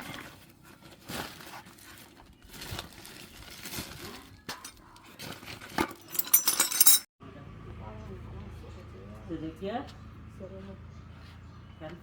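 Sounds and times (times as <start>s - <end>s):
metal parts clinking: 5.9s - 7.1s.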